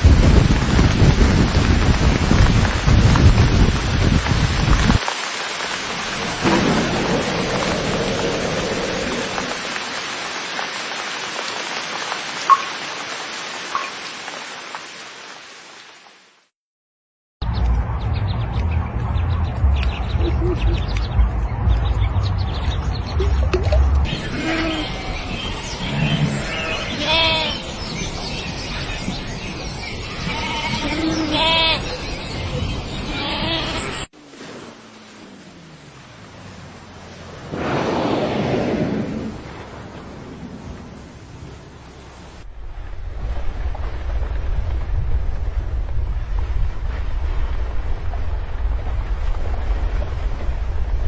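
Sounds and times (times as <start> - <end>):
thunder rumble: 0.0 - 5.0, 5.7 - 10.2, 35.1 - 51.0
steady rain: 0.0 - 16.5, 23.2 - 51.0
water drips: 5.0 - 15.0, 22.6 - 24.1
animal bleating calls: 24.1 - 27.7, 30.0 - 32.0, 33.1 - 34.0.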